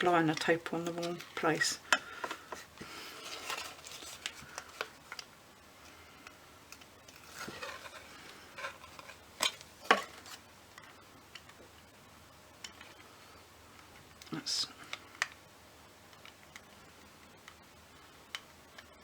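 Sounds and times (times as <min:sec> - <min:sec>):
paper rustling: 0:00.6 - 0:05.3, 0:07.1 - 0:10.4.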